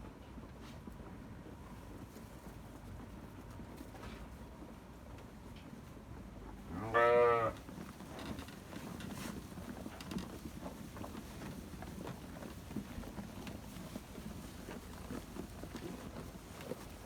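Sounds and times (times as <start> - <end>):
sheep bleating: 6.8 - 7.6.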